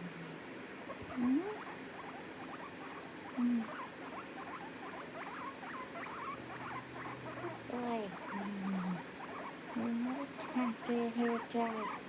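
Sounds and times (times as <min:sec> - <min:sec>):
small pet squeaking and chirping: 0:00.9 - 0:12.0.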